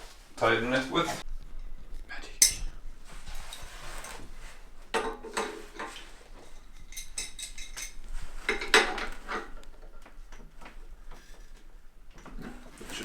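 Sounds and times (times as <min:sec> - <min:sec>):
wrench clinking and scraping metal: 0:02.4 - 0:02.8, 0:05.0 - 0:09.6.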